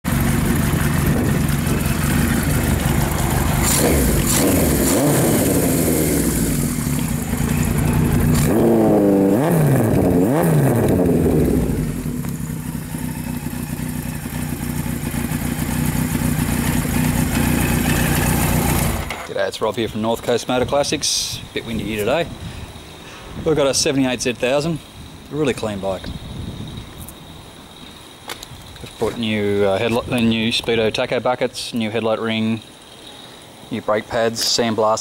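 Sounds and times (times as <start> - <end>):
motorcycle engine idling and revving: 0.0 - 19.2.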